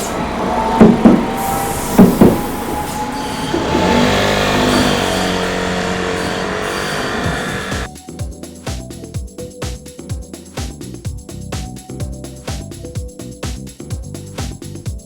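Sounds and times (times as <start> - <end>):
train motor whine: 0.0 - 7.9
train wheels clacking: 0.0 - 7.9.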